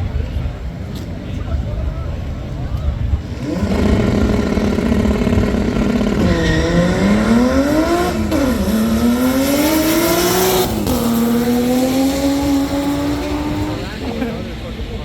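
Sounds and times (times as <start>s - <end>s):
car engine accelerating through gears: 3.2s - 14.2s.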